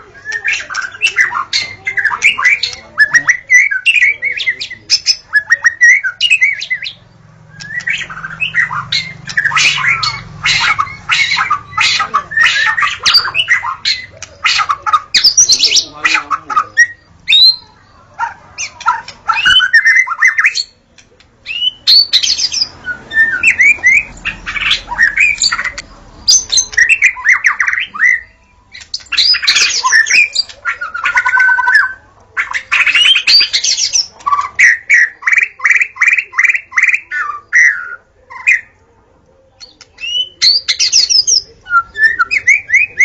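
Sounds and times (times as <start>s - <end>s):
bird singing varied whistles: 2.0s - 10.2s.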